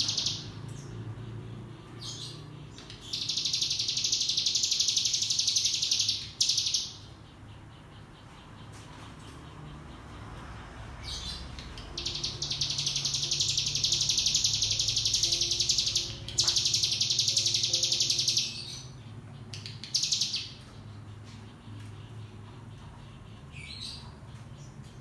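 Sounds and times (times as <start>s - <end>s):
bird singing rattling trill: 0.0s - 25.0s.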